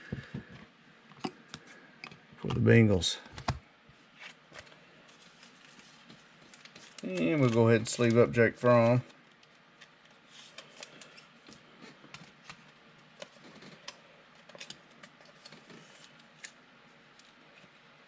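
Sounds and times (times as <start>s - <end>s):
soft rustling of plastic sleeve: 4.0s - 11.6s.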